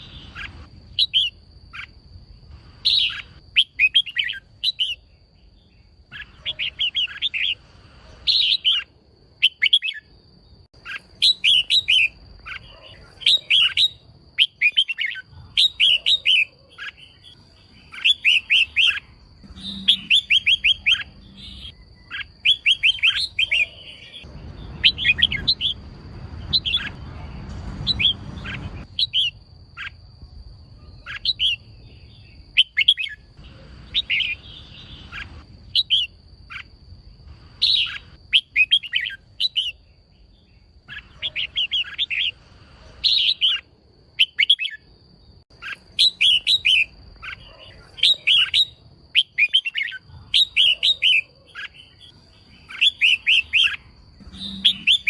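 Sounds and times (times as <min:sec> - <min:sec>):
bird chirping calls: 0:00.0 - 0:30.0, 0:30.6 - 0:55.0
low rumble: 0:24.3 - 0:29.0.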